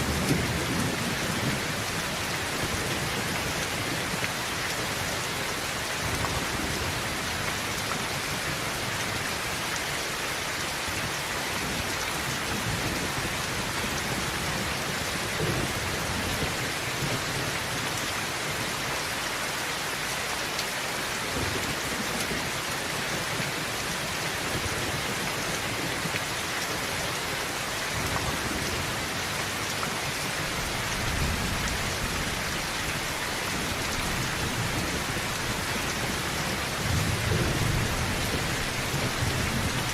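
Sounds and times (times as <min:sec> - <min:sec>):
heavy rain on a tin roof: 0:00.0 - 0:39.9
low thunder rumbling: 0:30.4 - 0:39.9.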